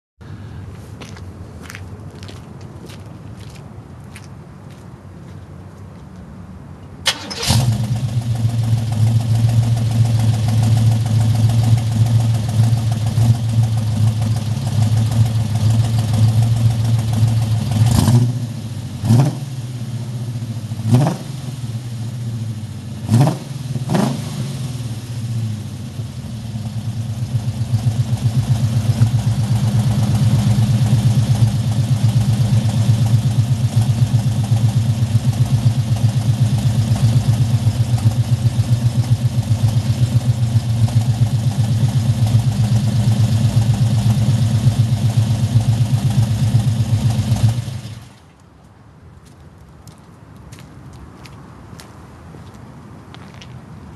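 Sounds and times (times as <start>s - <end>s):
car engine starting and idling: 7.0s - 48.3s
engine revving: 7.1s - 21.9s, 23.0s - 25.9s, 26.6s - 48.1s.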